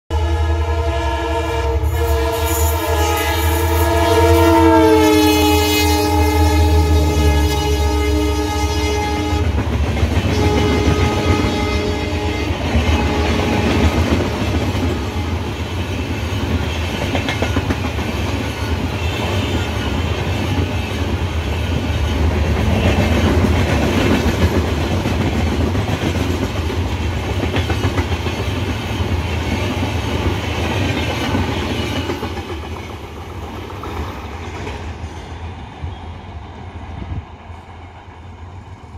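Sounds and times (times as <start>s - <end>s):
train horn: 0.1s - 15.8s, 18.5s - 20.1s
train wheels rumbling: 0.2s - 38.9s.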